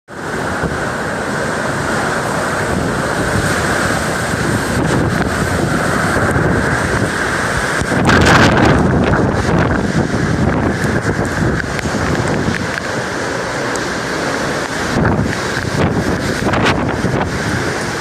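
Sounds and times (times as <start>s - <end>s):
rain: 0.1s - 18.0s
wind buffeting microphone: 0.1s - 18.0s.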